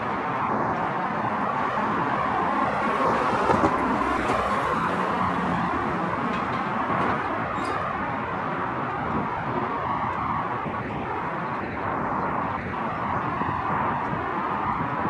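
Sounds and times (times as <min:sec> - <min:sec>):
road traffic hum: 0:00.0 - 0:15.0
freight train rolling on rails: 0:00.7 - 0:09.8.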